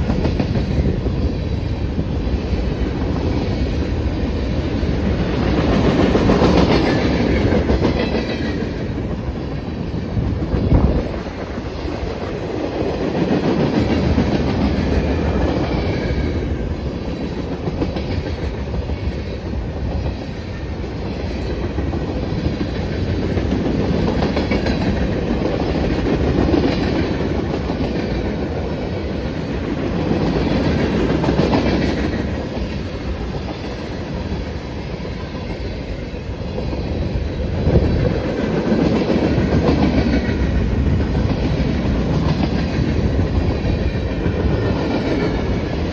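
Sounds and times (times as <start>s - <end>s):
train wheels rumbling on rail: 0.0s - 45.9s.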